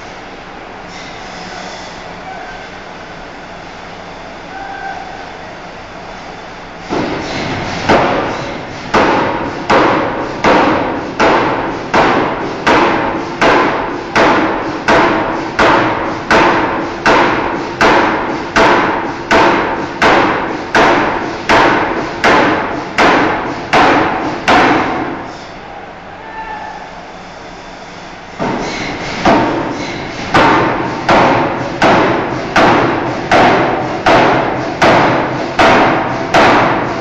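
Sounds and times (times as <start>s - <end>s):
machine rumble: 5.5s - 25.4s
hammer striking steel bar: 6.9s - 25.2s, 28.4s - 37.0s.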